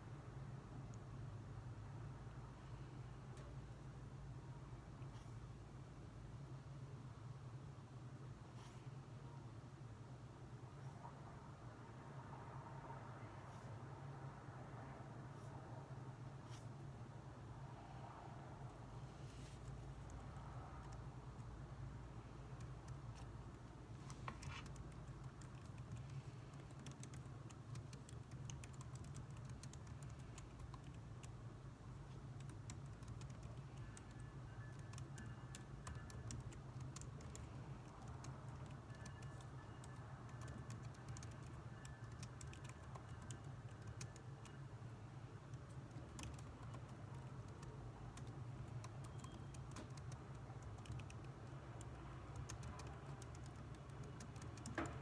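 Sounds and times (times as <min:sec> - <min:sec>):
steady low hum: 0:00.0 - 0:55.0
keyboard key clicks: 0:46.0 - 0:55.0.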